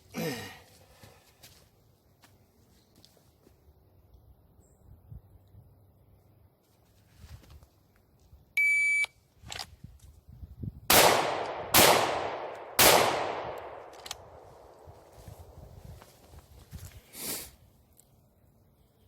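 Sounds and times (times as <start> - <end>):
short electronic beep: 8.6 - 9.1
handgun shots echoing: 10.9 - 14.9.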